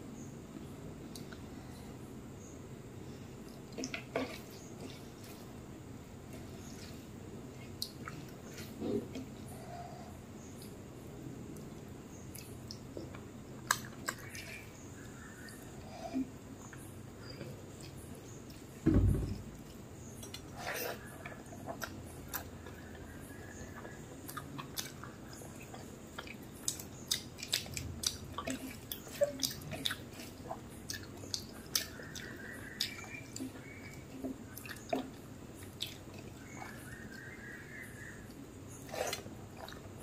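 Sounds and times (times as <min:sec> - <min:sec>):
chewing with wet mouth clicks: 0:11.5 - 0:15.7, 0:21.2 - 0:37.4
low thump: 0:18.8 - 0:19.6.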